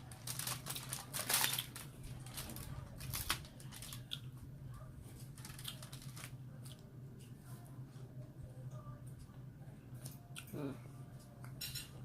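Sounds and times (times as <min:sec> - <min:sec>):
chewing with wet mouth clicks: 0:10.0 - 0:10.6.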